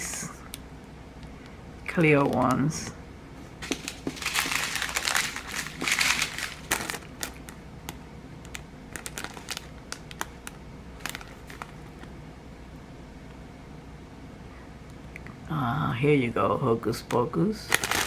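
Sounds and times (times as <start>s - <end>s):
plastic packaging crinkling: 3.6s - 12.1s, 17.7s - 18.0s.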